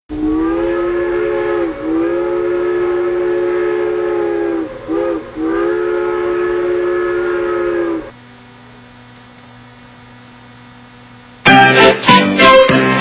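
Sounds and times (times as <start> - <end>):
steam locomotive chime whistle: 0.1 - 8.1, 11.5 - 13.0.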